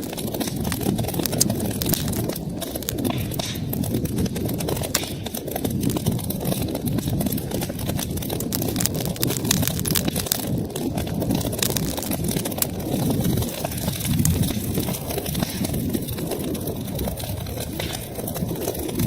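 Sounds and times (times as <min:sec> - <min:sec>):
low flame noise: 0:00.0 - 0:19.0
wood crackling and popping: 0:00.0 - 0:19.0.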